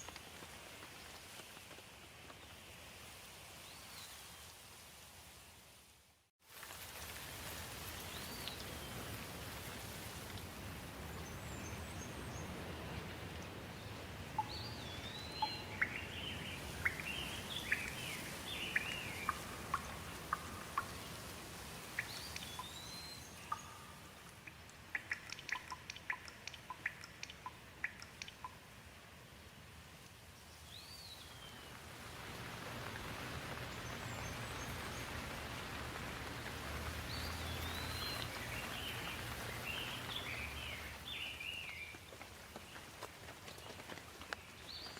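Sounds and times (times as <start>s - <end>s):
steady rain: 0.0s - 44.9s
birds chirping: 14.4s - 21.0s, 33.5s - 42.0s
sharp drips: 14.4s - 28.7s, 32.6s - 43.0s.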